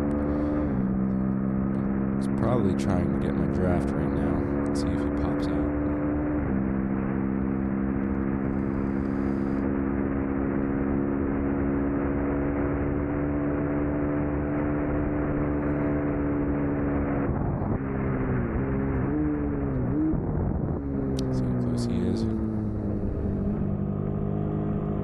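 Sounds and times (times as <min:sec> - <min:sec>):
motorcycle engine racing at high revs: 0:00.0 - 0:25.0
wind rushing over microphone: 0:17.1 - 0:17.8, 0:19.0 - 0:23.7.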